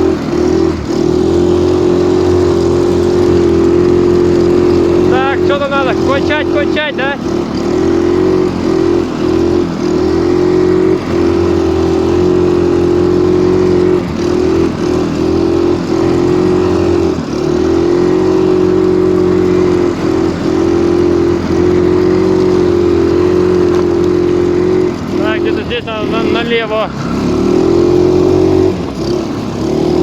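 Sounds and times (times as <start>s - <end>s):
snowmobile engine at high revs: 0.0s - 30.0s.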